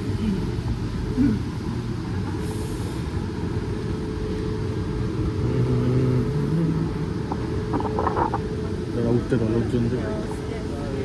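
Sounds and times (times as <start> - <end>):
electric train humming: 1.6 - 9.2.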